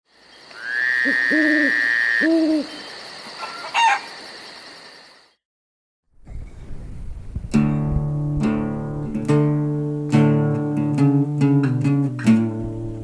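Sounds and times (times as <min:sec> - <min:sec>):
owl-like hooting bird calls: 0:00.5 - 0:04.2.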